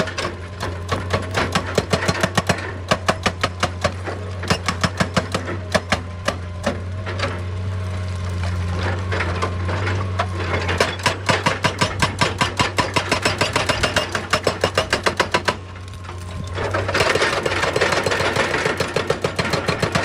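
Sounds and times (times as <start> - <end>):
excavator diesel engine running: 0.0 - 20.0
sharp knocks hammering: 10.9 - 15.6.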